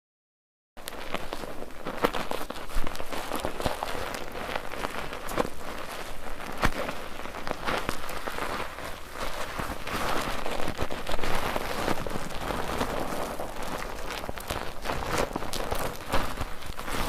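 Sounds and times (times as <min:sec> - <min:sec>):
soap foam squelching: 0:01.1 - 0:17.0.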